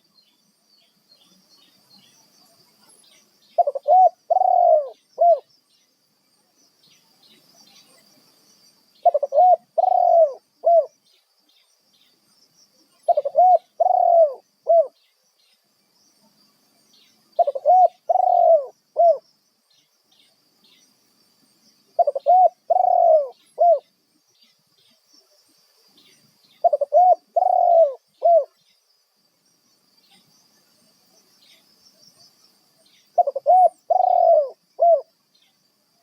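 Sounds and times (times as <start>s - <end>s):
dove cooing: 3.6s - 5.5s, 9.0s - 10.9s, 13.1s - 15.0s, 17.4s - 19.2s, 22.0s - 23.9s, 26.6s - 28.6s, 33.2s - 35.1s.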